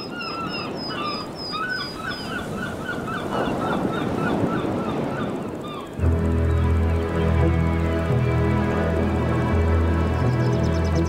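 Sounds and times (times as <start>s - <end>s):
rapid repeated bird calls: 0.0s - 6.6s
outdoor background noise: 0.0s - 11.0s.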